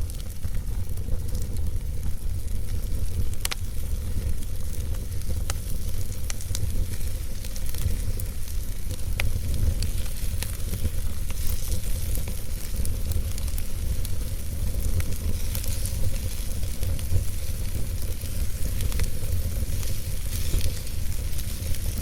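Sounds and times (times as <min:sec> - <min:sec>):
wood fire burning: 0:00.0 - 0:22.0.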